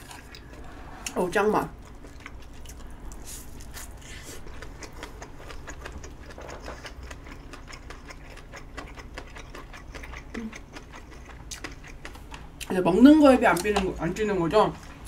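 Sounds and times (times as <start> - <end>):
chewing with wet mouth clicks: 0.0 - 0.6, 1.8 - 12.7.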